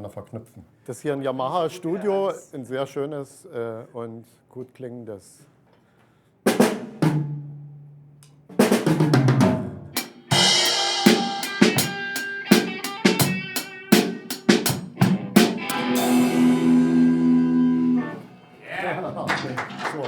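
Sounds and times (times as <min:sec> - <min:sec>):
drum kit playing: 0:06.5 - 0:20.0
sustained pitched notes: 0:15.5 - 0:19.8.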